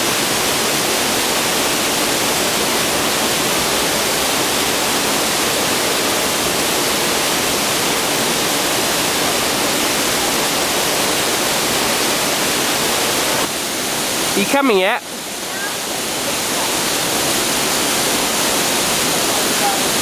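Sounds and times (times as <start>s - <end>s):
waterfall rushing into pool: 0.0s - 20.0s.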